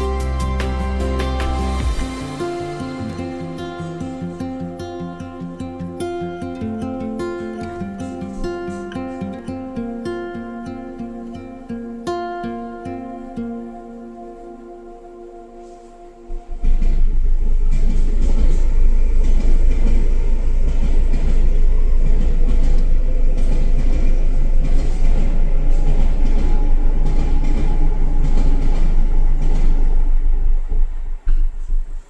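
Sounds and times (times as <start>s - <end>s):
train rumbling past: 15.6s - 32.0s.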